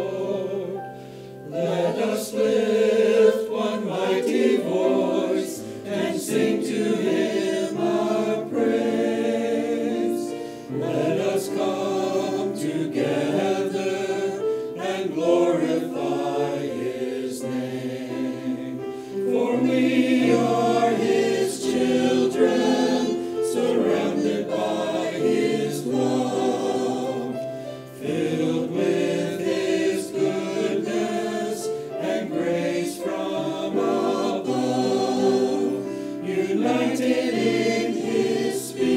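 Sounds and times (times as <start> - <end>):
choir singing in harmony: 0.0 - 38.9.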